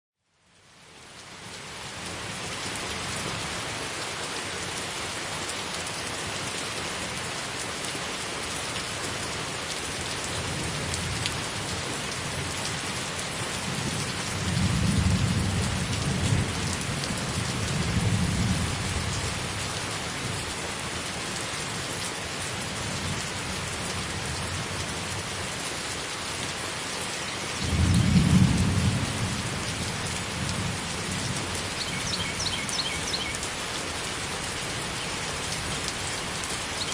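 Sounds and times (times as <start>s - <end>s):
rain hissing: 1.2s - 36.9s
thunder rumbling: 14.4s - 16.6s, 27.6s - 30.9s.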